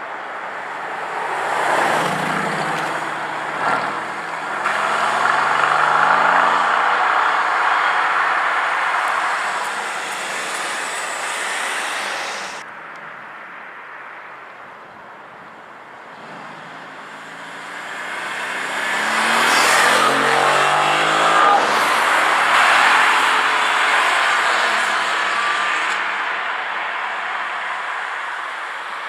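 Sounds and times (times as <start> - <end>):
car exhaust accelerating hard: 2.1 - 12.6.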